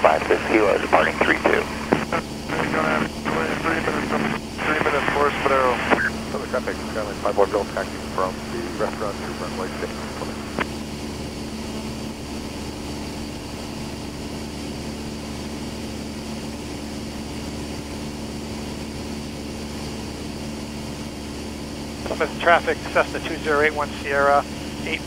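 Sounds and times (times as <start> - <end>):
airplane engine and propeller drone: 0.0 - 25.0.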